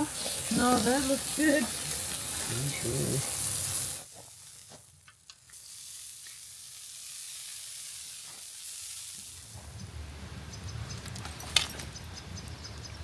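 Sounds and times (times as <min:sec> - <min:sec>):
steaks sizzling on a griddle: 0:00.0 - 0:09.7.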